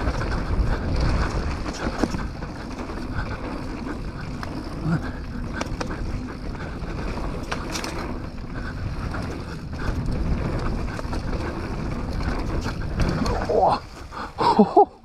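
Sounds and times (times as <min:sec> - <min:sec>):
bike clicks and clatters: 0:00.0 - 0:15.0.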